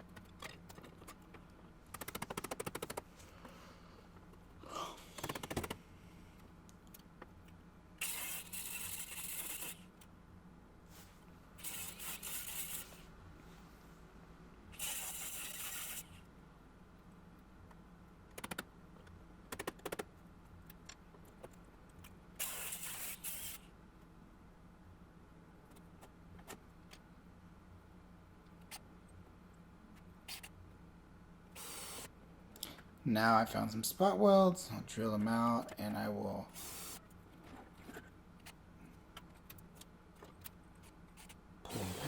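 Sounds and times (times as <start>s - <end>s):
sharp clicks: 18.3s - 18.7s.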